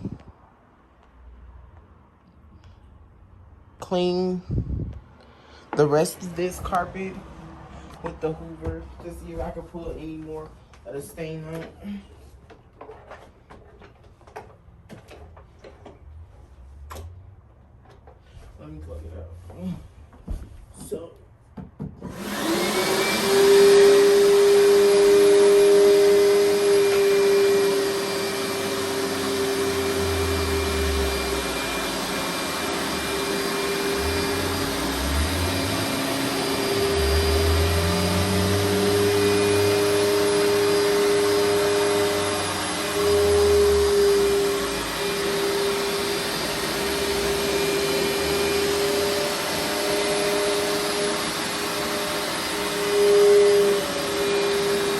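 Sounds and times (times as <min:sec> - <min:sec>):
carpet cleaner motor whine: 0:22.0 - 0:54.9.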